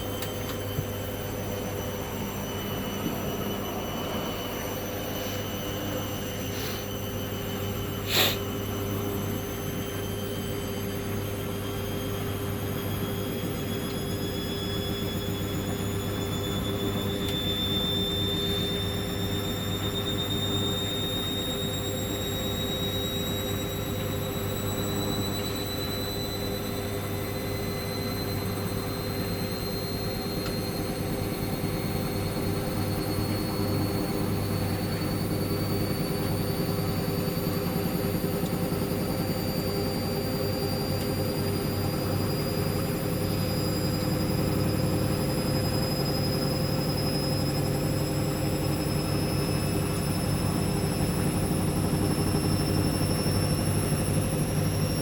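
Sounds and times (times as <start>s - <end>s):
washing machine motor whining: 0.0s - 55.0s.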